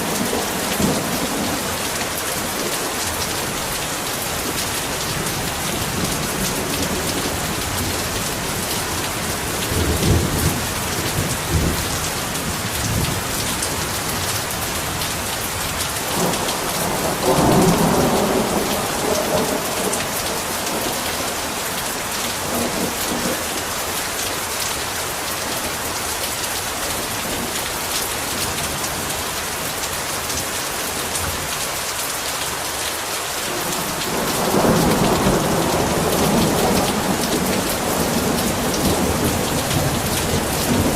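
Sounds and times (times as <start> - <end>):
heavy rain: 0.0 - 40.9
thunder rumbling: 16.0 - 23.4, 33.6 - 40.9.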